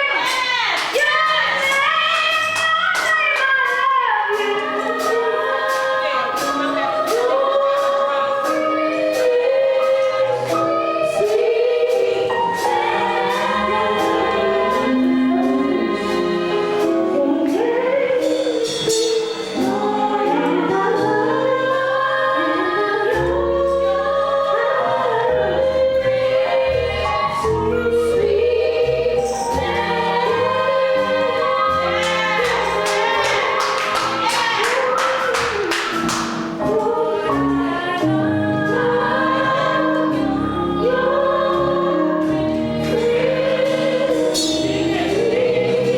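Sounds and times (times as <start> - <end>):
gospel choir singing: 0.0 - 45.9
band accompaniment: 0.2 - 45.9
cymbal strokes: 44.1 - 45.3.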